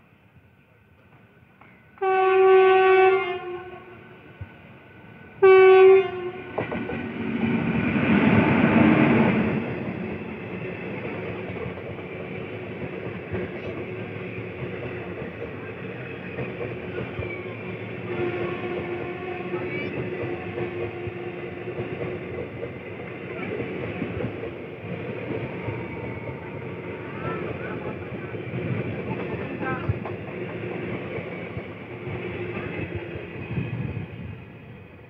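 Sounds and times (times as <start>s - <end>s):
train passing close by: 0.0s - 35.0s
train horn blasts: 2.0s - 4.1s, 5.4s - 6.6s, 18.0s - 21.8s
rumble of rolling coaches: 6.1s - 35.0s.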